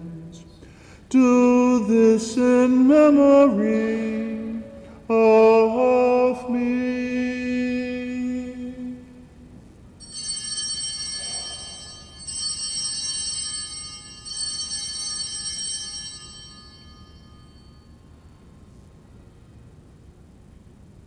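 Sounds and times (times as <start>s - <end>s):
altar bells jingling: 10.0s - 18.5s.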